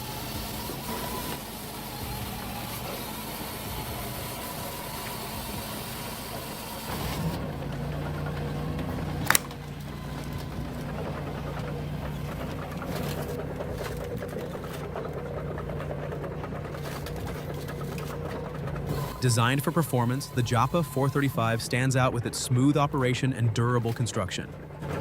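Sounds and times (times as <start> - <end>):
firewood processor mechanical hum: 0.0 - 25.0
sharp crack: 9.0 - 11.6.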